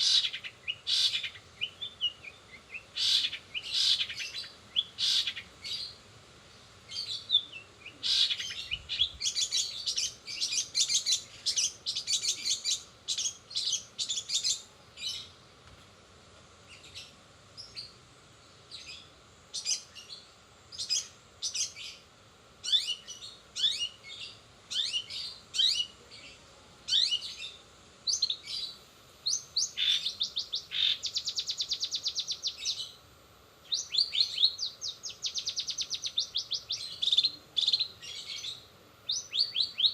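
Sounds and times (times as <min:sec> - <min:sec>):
shrike singing: 0:00.0 - 0:06.1, 0:06.8 - 0:15.4, 0:22.6 - 0:33.0, 0:33.6 - 0:39.9.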